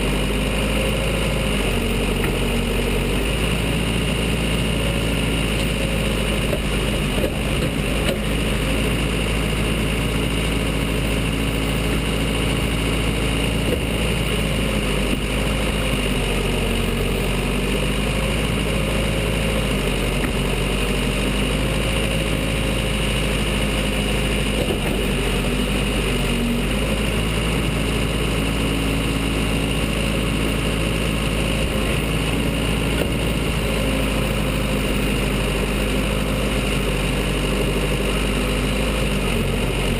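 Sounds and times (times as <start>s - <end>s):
diesel engine running at low revs: 0.0s - 39.9s.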